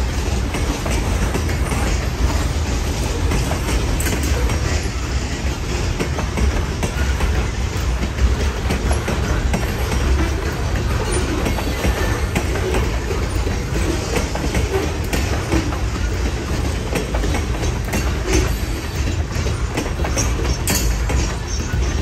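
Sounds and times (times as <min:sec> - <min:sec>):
freight train rumbling past: 0:00.0 - 0:22.0
wheels clicking over rail joints: 0:00.0 - 0:22.0.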